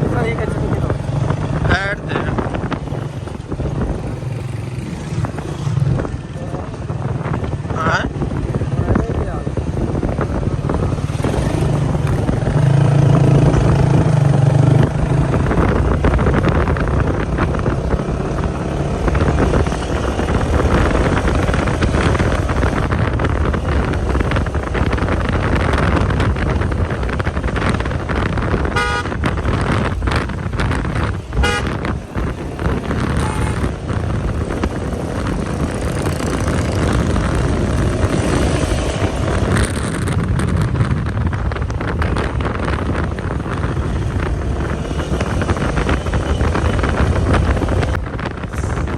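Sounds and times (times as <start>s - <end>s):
vehicle engines running: 0.0s - 48.9s
short horn honks: 28.8s - 29.2s, 31.4s - 31.8s, 33.2s - 33.7s.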